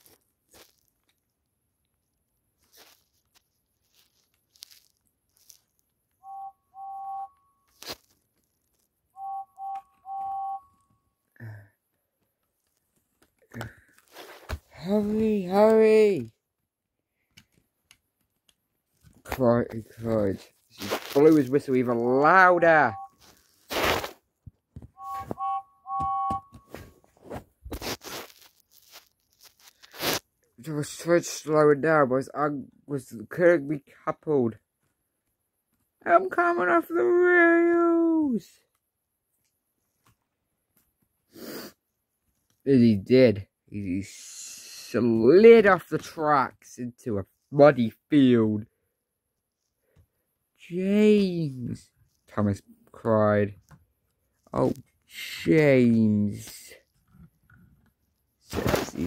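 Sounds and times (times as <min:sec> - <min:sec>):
steam engine whistle: 0:25.0 - 0:26.4.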